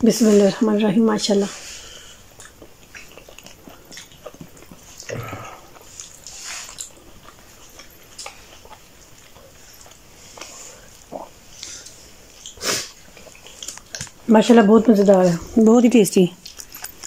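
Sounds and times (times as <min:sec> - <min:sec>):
person chewing food: 0:01.6 - 0:14.3, 0:16.4 - 0:17.0.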